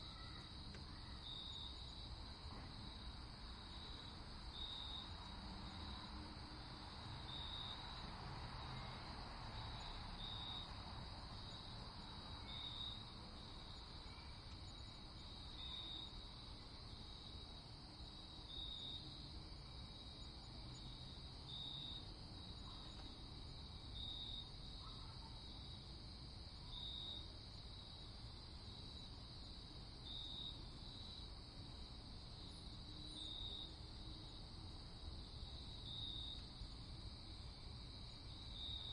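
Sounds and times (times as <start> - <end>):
cricket chirping: 0.0 - 38.9
faint steady hiss: 0.0 - 38.9.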